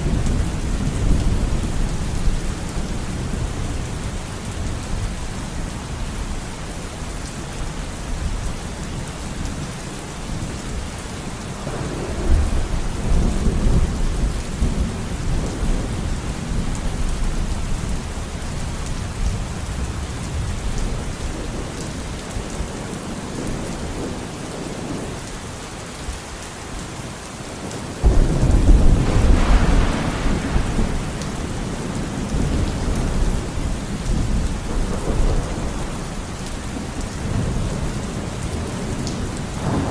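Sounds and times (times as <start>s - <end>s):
thunder rumbling: 0.0s - 5.7s, 11.6s - 18.2s, 28.0s - 39.9s
steady rain falling: 0.0s - 39.9s.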